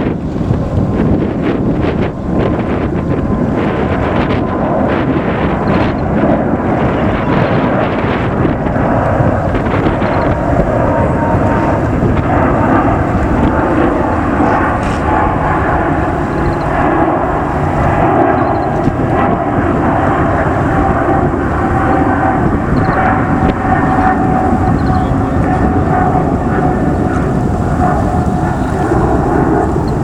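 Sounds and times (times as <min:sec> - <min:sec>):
jet airliner engines roaring: 0:00.0 - 0:30.0
faint falling whine: 0:08.9 - 0:30.0.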